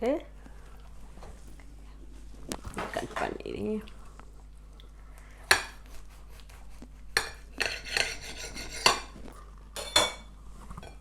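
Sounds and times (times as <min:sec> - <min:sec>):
knife clinking and scraping on plate: 0:07.2 - 0:09.2, 0:09.8 - 0:11.0.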